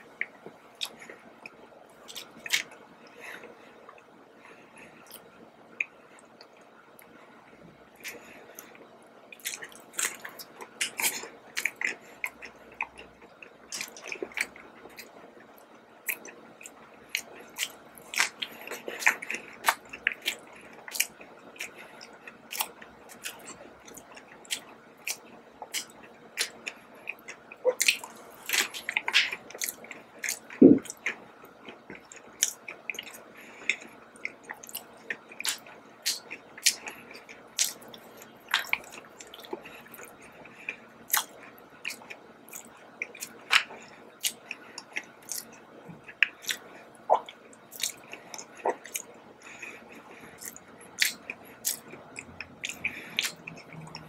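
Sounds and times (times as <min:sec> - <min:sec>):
person chewing with wet smacks: 0:00.1 - 0:04.1, 0:04.8 - 0:07.2, 0:07.9 - 0:54.0.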